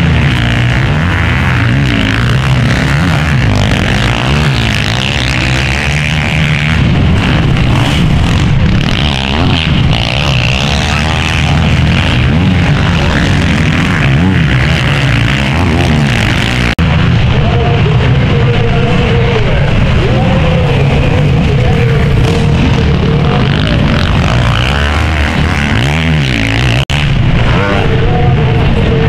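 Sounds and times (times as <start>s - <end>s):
motocross bike engines racing: 0.0s - 29.0s.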